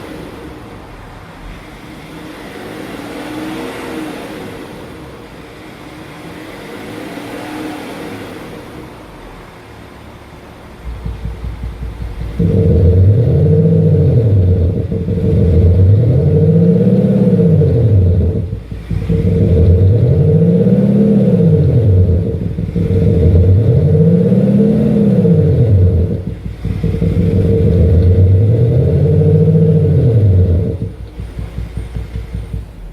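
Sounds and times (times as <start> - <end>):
steady low hum: 10.4 - 32.9
synthetic exhaust note revving: 10.8 - 32.9.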